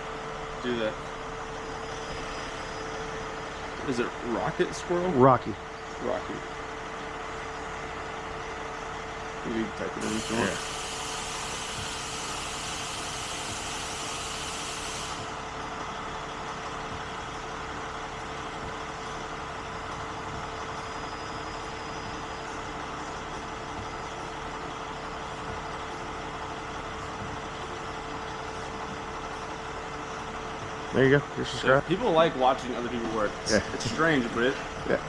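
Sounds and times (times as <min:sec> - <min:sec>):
truck engine idling: 0:00.0 - 0:35.0
high hiss: 0:10.0 - 0:15.3.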